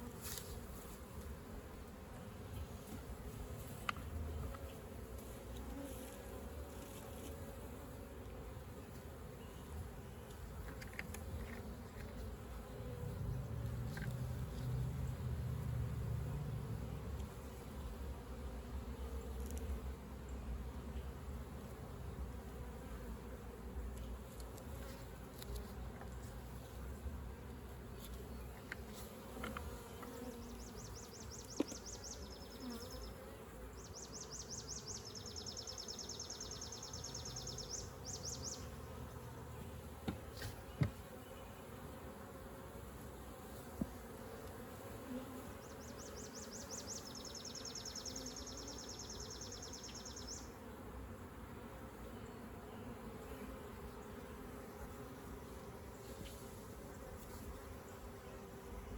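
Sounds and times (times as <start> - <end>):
honeybees buzzing: 0.0 - 58.9.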